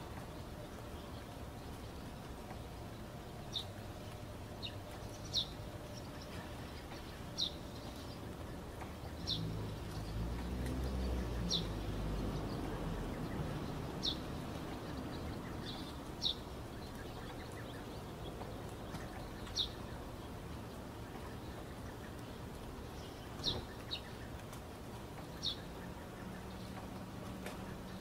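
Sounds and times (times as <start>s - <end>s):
steady background noise: 0.0s - 28.0s
bird chirping: 0.2s - 24.6s, 25.2s - 28.0s.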